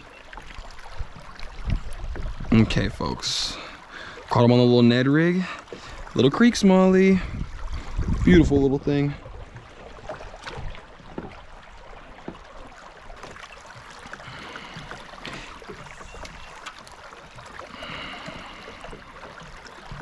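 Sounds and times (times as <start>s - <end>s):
creek water running: 0.0s - 20.0s
boat and gear knocking: 9.2s - 20.0s.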